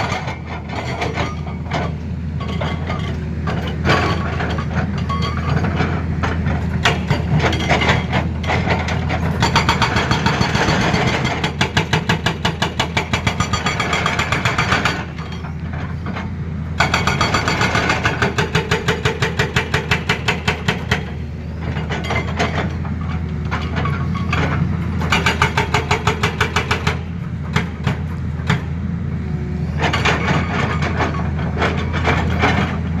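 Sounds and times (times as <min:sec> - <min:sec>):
hydraulic breaker hammering: 0:06.4 - 0:15.3, 0:16.8 - 0:21.3, 0:24.9 - 0:28.8.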